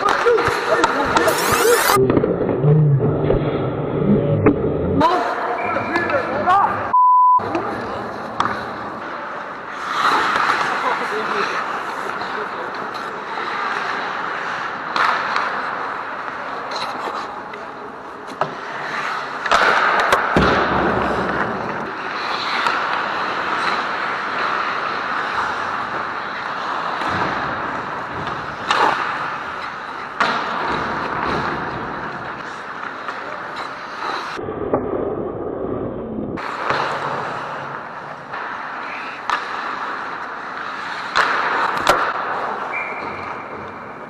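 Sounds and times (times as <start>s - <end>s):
hockey sticks clacking on puck: 0.0s - 2.0s, 8.2s - 34.4s, 36.4s - 44.0s
skates scraping on ice: 0.0s - 2.0s, 7.6s - 34.4s, 36.4s - 44.0s
steady rink hiss: 0.8s - 2.0s.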